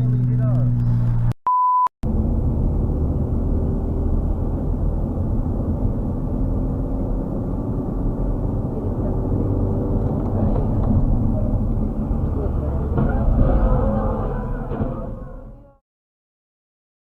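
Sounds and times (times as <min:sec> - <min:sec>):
car driving rumble: 0:00.0 - 0:01.4, 0:02.0 - 0:15.8
censor bleep: 0:01.4 - 0:01.9.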